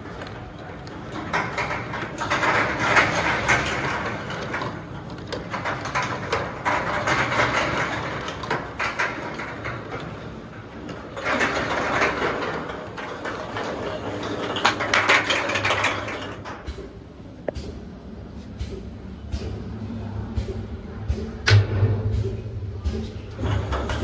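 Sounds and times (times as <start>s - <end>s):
bottling machine clattering: 0.0s - 16.8s.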